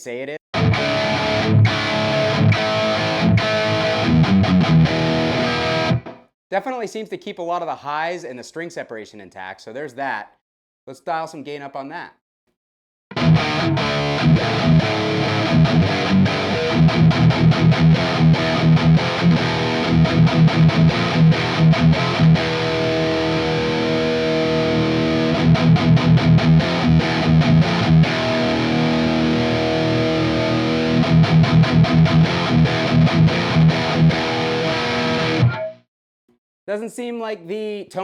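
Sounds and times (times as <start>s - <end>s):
distorted electric guitar riffs: 0.6s - 6.3s, 13.1s - 35.9s.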